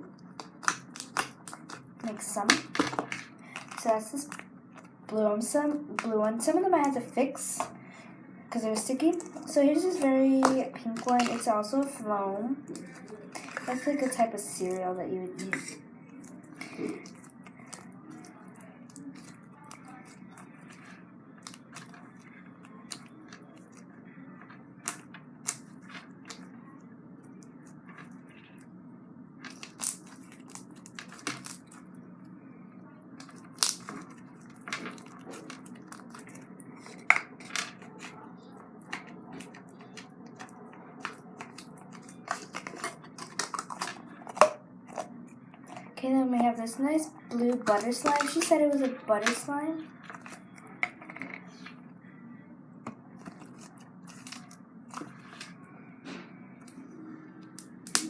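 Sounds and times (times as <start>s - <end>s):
low background hum: 0.0s - 58.0s
slime crackling and popping: 0.2s - 4.9s, 9.0s - 11.5s, 21.4s - 26.5s, 29.5s - 31.8s, 33.2s - 45.1s, 53.2s - 55.5s, 57.6s - 58.0s.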